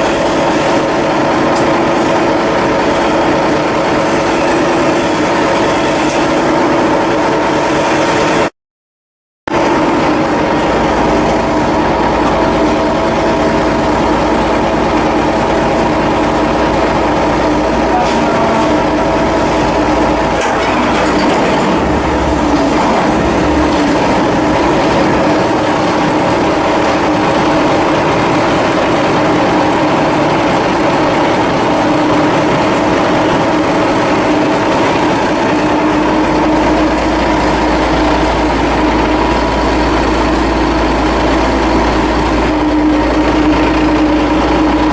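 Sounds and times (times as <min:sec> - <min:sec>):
machinery humming: 0:09.5 - 0:44.9.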